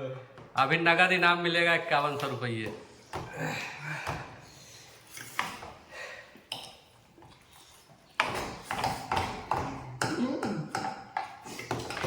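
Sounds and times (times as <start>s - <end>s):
utensils clinking on plate: 6.5s - 12.0s.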